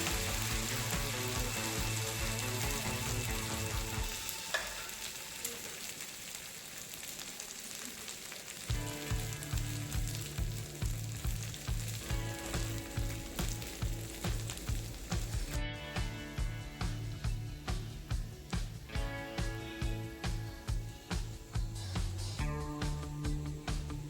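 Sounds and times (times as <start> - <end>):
background music with steady beat: 0.0 - 5.3, 8.7 - 24.0
food sizzling on hot plate: 0.0 - 15.6.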